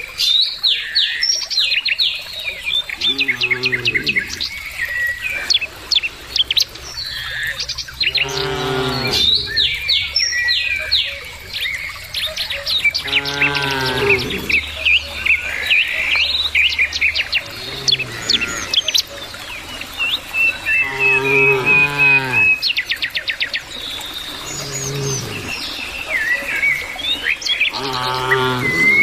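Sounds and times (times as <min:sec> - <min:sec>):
small birds chirping: 0:00.0 - 0:29.0
cows mooing: 0:03.0 - 0:04.6, 0:08.0 - 0:10.0, 0:13.0 - 0:14.6, 0:17.4 - 0:18.9, 0:20.7 - 0:22.6, 0:24.3 - 0:25.6, 0:27.7 - 0:29.0.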